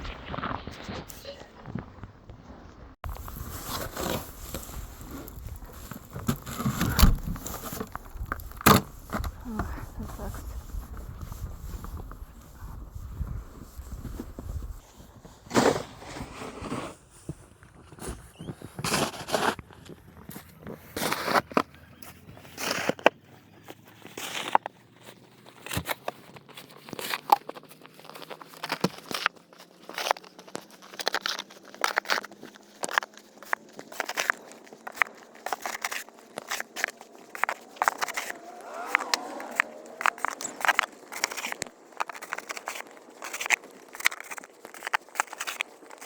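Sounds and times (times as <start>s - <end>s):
footsteps crunching through snow: 0.0s - 17.4s, 32.8s - 46.0s.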